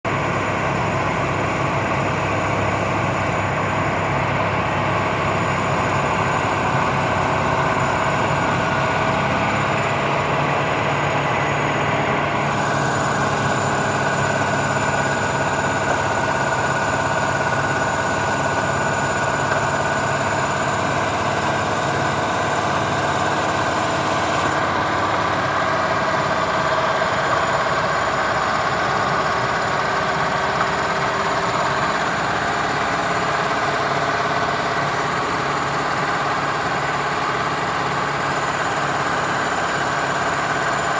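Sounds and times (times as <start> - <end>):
milling machine running: 0.1 - 40.9.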